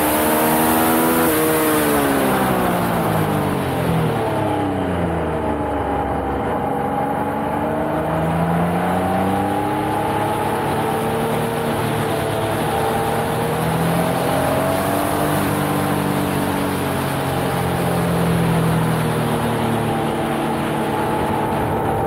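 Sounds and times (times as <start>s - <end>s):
motorcycle engine revving: 0.0s - 22.0s
wind noise: 8.9s - 22.0s.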